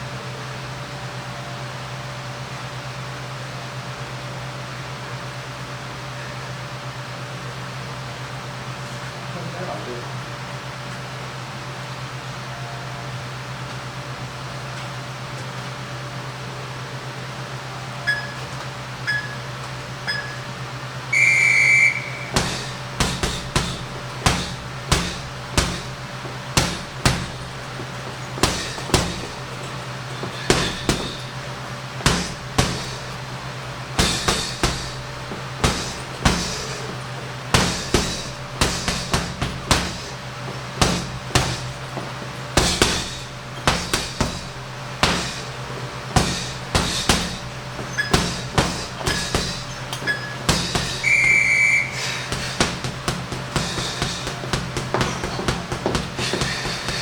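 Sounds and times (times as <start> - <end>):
steady low hum: 0.0 - 57.0
interval timer beeps: 18.0 - 22.4
punches on heavy punching bag: 22.0 - 57.0.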